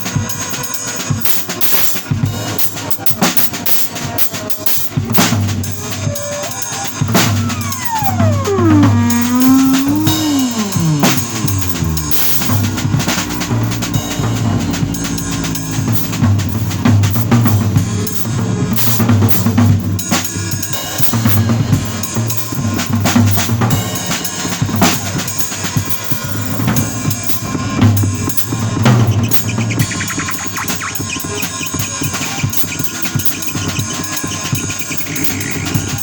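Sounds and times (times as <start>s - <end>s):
drum kit: 0.0s - 36.0s
bass guitar: 7.1s - 20.2s.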